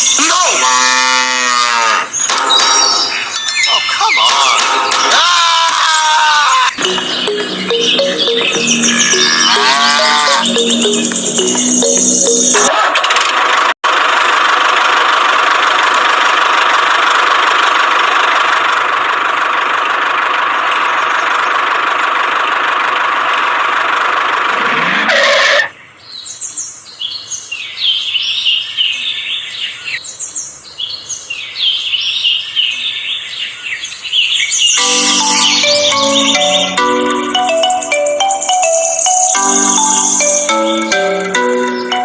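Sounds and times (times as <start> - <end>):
birds chirping: 6.5 - 12.7, 24.6 - 42.0.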